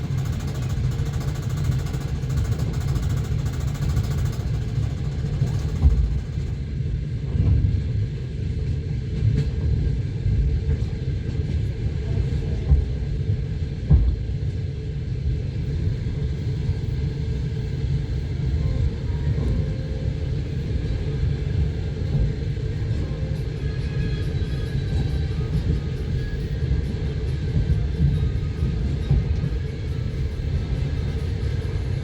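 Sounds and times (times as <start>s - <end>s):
train wheels rumbling: 0.0s - 32.0s.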